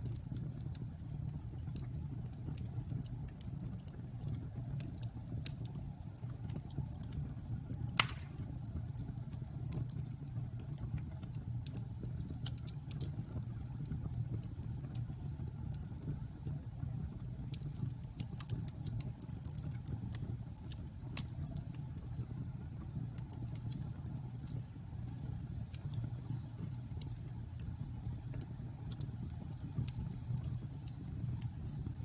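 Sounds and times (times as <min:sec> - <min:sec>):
bonfire flames rumbling: 0:00.0 - 0:32.0
fire crackling: 0:00.0 - 0:32.0
loud pop of fire: 0:08.0 - 0:08.8.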